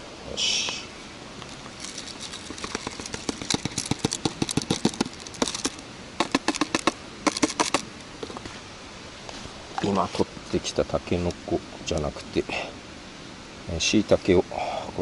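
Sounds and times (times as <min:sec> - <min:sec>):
cooking gear clicking and knocking: 0:01.9 - 0:07.8.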